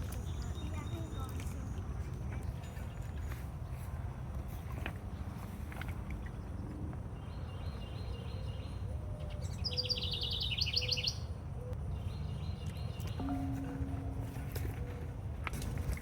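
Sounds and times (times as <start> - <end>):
songbird trill: 0.0 - 3.9, 6.2 - 15.8
low rumble: 13.2 - 16.0.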